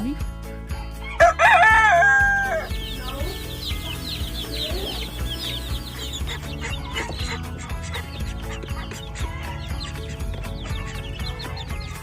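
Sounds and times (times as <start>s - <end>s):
rooster crowing: 1.2s - 2.8s
chickens clucking: 1.5s - 12.0s.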